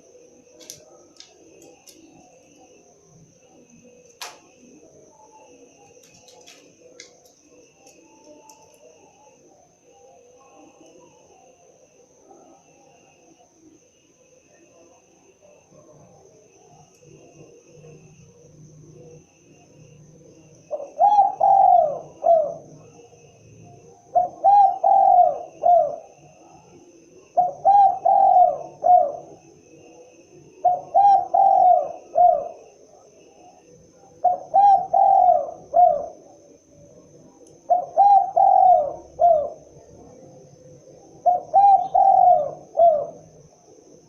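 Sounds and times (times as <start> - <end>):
dove cooing: 0.0 - 12.7, 20.3 - 23.0, 23.9 - 44.0.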